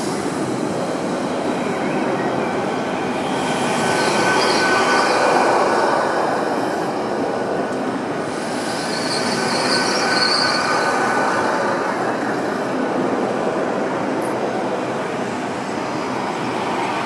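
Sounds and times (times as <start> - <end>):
high wheel squeal: 0.0 - 13.4
train rolling rumble: 0.0 - 17.0.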